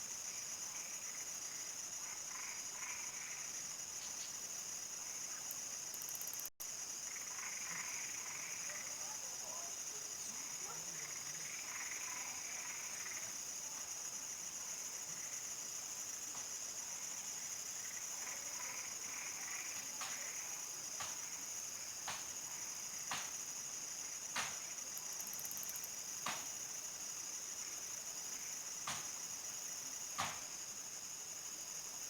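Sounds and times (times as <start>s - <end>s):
crickets trilling: 0.0s - 32.0s
frogs calling: 2.0s - 4.3s, 7.0s - 13.4s, 17.8s - 20.6s.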